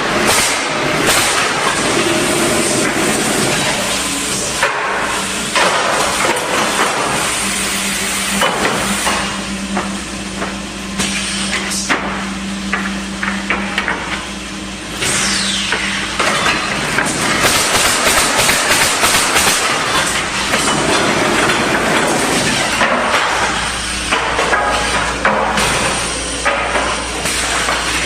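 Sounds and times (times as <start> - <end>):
machine hum: 0.0 - 28.0
nail gun shots and clanks: 17.4 - 19.8.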